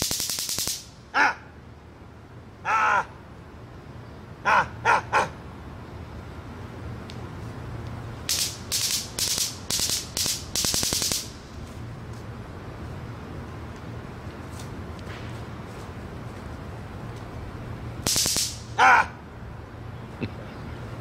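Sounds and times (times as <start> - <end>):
crow cawing: 2.6 - 3.1.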